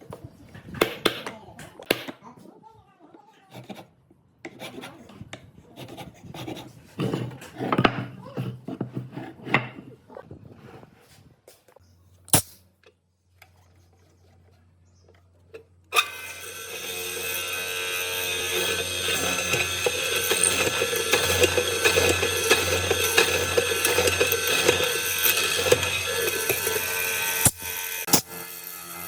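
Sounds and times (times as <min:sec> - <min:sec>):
wood rubbed and scraped by hand: 0:04.5 - 0:11.3, 0:13.5 - 0:15.7, 0:16.6 - 0:27.3
power tool running: 0:15.9 - 0:29.0.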